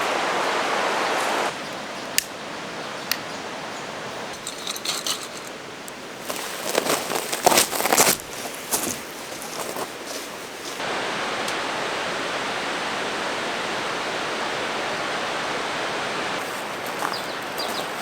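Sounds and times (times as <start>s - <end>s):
mountain stream rushing: 0.0s - 18.0s
light clicks and rustles: 4.4s - 10.8s.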